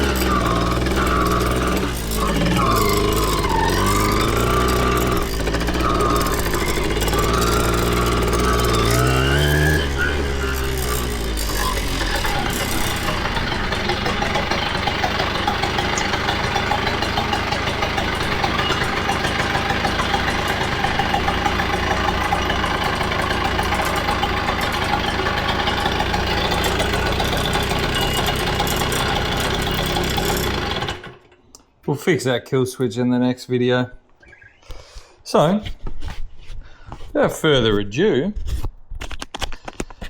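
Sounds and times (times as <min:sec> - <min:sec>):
two-stroke engine idling: 0:00.0 - 0:31.3.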